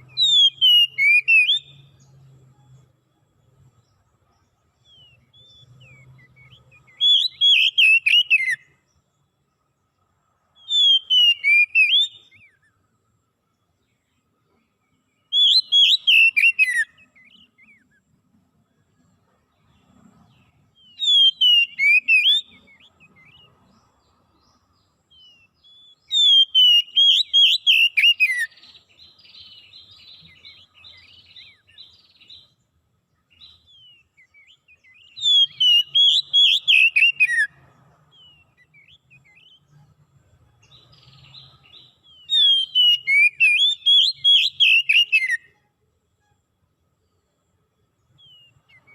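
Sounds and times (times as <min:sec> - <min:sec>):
songbird singing whistled phrases: 0:00.0 - 0:02.8, 0:03.9 - 0:08.9, 0:10.5 - 0:12.8, 0:14.9 - 0:18.0, 0:20.7 - 0:32.6, 0:33.2 - 0:45.7, 0:48.1 - 0:48.9
faint bird chirps: 0:00.0 - 0:48.9.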